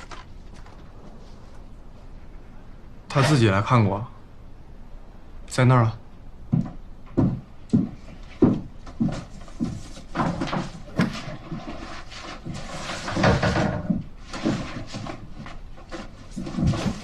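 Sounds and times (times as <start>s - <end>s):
rummaging knocks and rustles: 6.6s - 17.0s.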